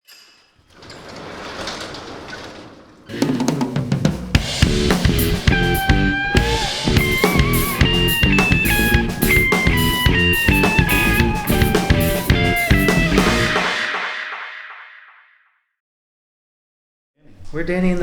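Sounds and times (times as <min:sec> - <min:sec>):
band playing instrumental rock: 0:03.2 - 0:14.2.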